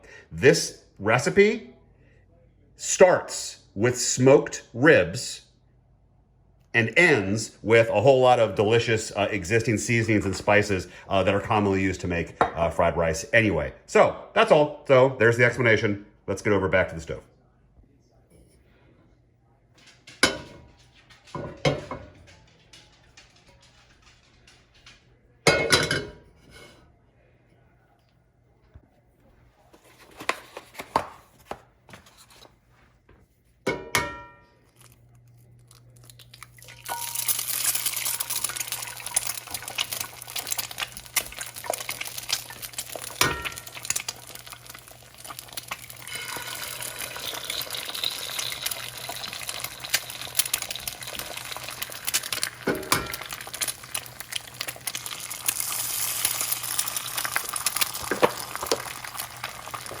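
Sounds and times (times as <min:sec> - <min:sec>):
kitchen utensils clinking: 0:19.8 - 0:26.8, 0:33.7 - 0:34.6, 0:36.5 - 1:00.0
food sizzling in a pan: 0:36.6 - 1:00.0.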